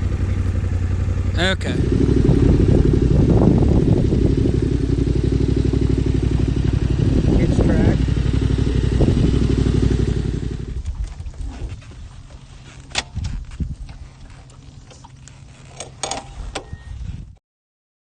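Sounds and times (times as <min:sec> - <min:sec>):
motorcycle engine running: 0:00.0 - 0:17.3.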